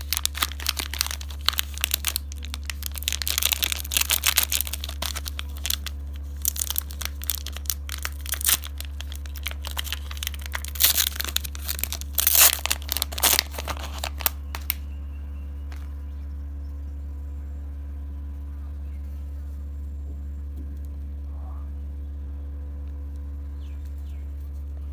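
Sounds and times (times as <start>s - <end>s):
plastic wrapper crinkling: 0.0s - 14.8s, 15.7s - 15.9s
steady low hum: 0.0s - 24.9s.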